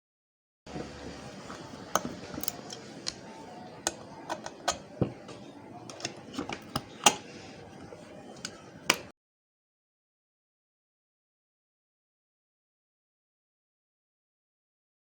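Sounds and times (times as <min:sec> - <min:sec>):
faint steady hum: 0:00.7 - 0:09.1.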